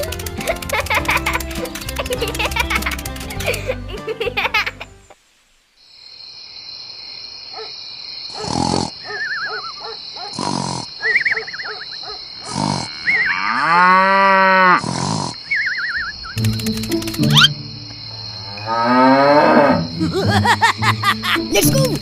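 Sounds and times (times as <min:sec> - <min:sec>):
warbling bird chirps: 0:09.0 - 0:09.9, 0:11.0 - 0:12.2, 0:15.4 - 0:17.6
cow mooing: 0:12.5 - 0:15.0, 0:18.4 - 0:19.9.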